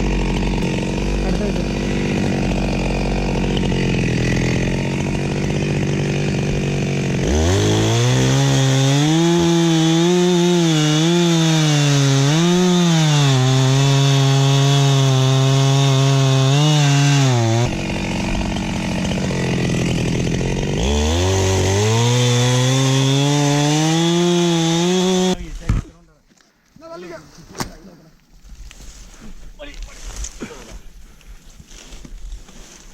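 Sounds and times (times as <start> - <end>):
chainsaw idling and revving: 0.0 - 25.4
chainsaw cutting wood: 0.0 - 25.8.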